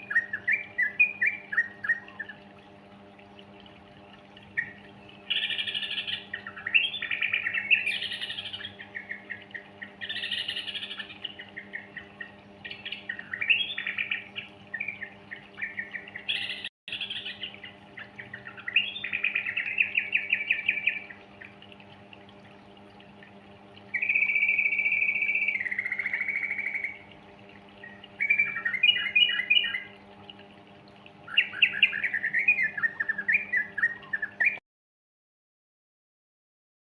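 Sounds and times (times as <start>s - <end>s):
steady low hum: 0.0s - 34.2s
bird chattering and warbling: 4.4s - 21.6s, 23.9s - 27.1s, 27.8s - 30.0s, 31.3s - 34.6s.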